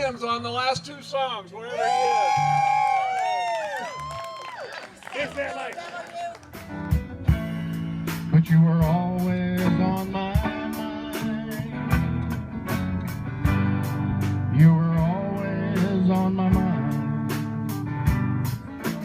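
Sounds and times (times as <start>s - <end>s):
bass guitar: 1.8s - 4.2s, 6.3s - 19.0s
electric guitar: 6.4s - 19.0s.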